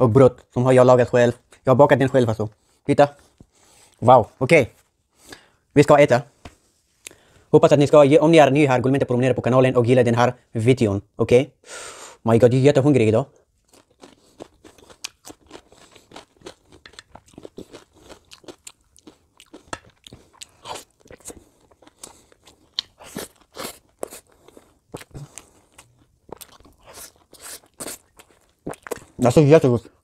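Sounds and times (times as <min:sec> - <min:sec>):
chewing crisp cucumber: 0:13.7 - 0:30.0.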